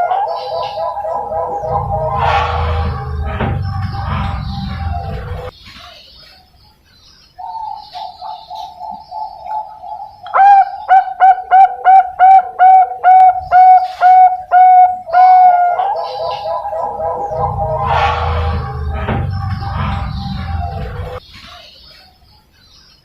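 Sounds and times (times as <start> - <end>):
dove cooing: 0.0 - 2.4, 7.4 - 18.2.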